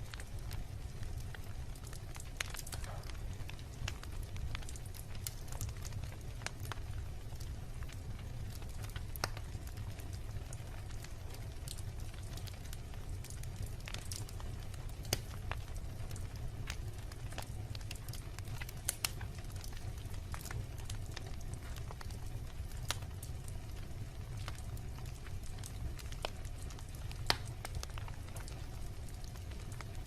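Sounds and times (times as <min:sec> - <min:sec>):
fire crackles and pops: 0:00.0 - 0:30.0
wood bonfire burning: 0:00.0 - 0:30.0.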